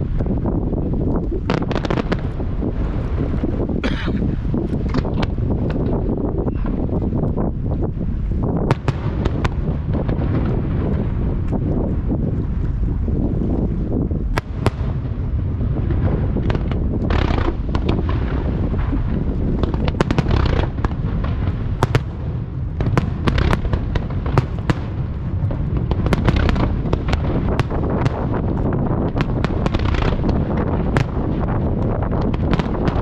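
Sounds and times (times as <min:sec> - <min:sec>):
low rumble: 0:00.0 - 0:33.0
fireworks bursts and reports: 0:01.4 - 0:03.8, 0:08.6 - 0:11.5, 0:14.3 - 0:33.0.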